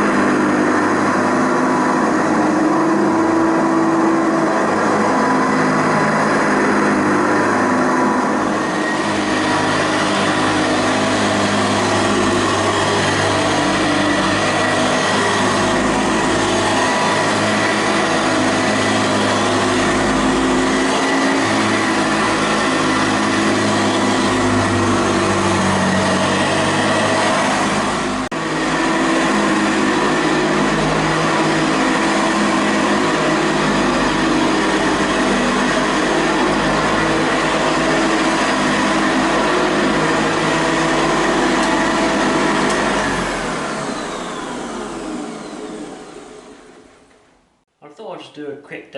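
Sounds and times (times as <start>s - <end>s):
upright vacuum cleaner on carpet: 0.0s - 47.6s.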